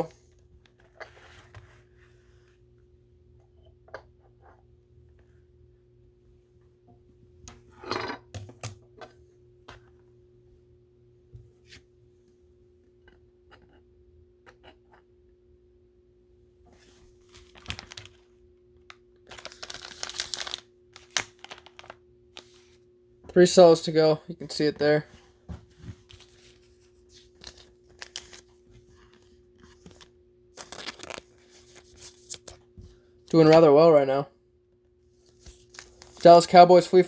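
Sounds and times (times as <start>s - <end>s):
faint electrical hum: 0.0s - 37.0s
cards and packaging rustling: 17.2s - 18.3s, 18.9s - 22.8s, 26.0s - 32.7s, 35.2s - 37.0s.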